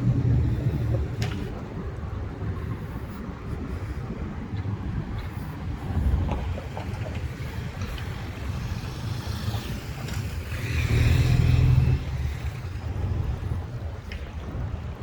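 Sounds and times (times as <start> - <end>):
vehicle passing: 6.0 - 13.8.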